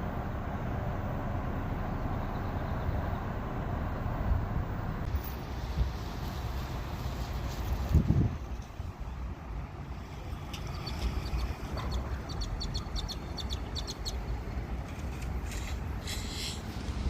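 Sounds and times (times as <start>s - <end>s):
steady low rumble: 0.0s - 17.0s
small birds chirping: 10.4s - 14.6s.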